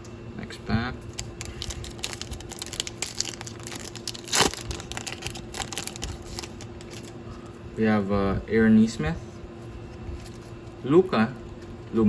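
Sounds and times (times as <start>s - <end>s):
plastic foil crinkling: 1.1s - 7.1s
wrapper ripping: 1.1s - 7.1s.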